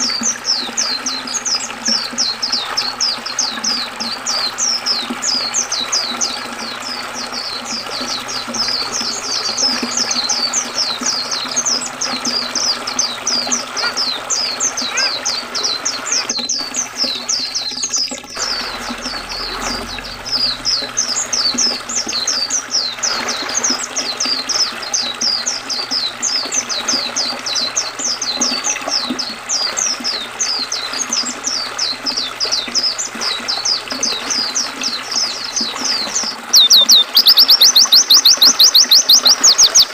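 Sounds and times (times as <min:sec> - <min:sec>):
flowing river water: 0:00.0 - 0:39.9
bird chirping rapidly: 0:36.5 - 0:39.9.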